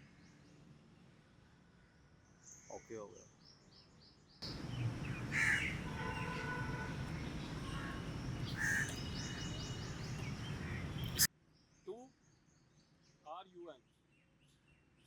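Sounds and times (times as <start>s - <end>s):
outdoor background noise: 0.0s - 15.0s
bird calling: 4.5s - 11.3s.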